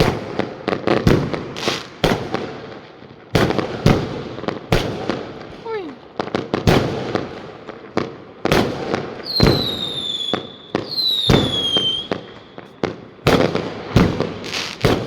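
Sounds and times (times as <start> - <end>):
fireworks exploding: 0.0 - 15.0
high firework whistles: 9.2 - 13.4, 14.4 - 15.0.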